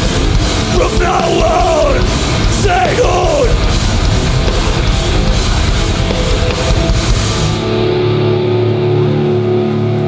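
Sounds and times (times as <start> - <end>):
drums with cymbals: 0.0 - 7.9
distorted electric guitars: 0.0 - 10.0.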